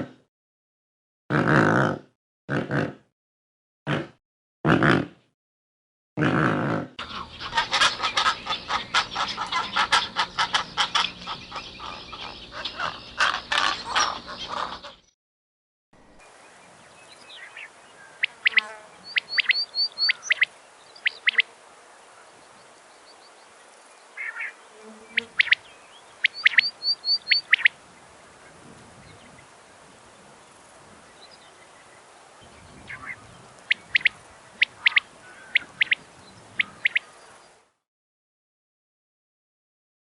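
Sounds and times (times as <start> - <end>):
songbird singing high notes: 17.0 - 21.4, 24.2 - 27.7.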